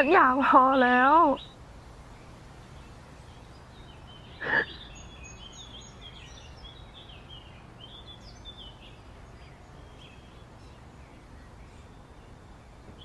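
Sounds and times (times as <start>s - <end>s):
outdoor background hiss: 0.0s - 13.0s
small birds chirping: 0.0s - 13.0s.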